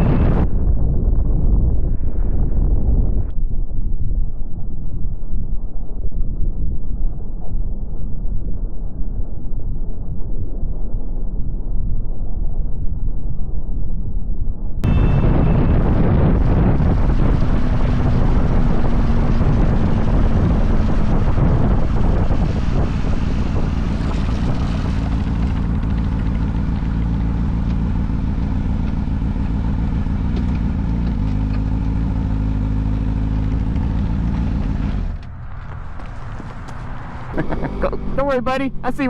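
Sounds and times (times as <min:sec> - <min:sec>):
road and wind noise: 0:00.0 - 0:39.0
motorcycle engine running: 0:14.8 - 0:39.0.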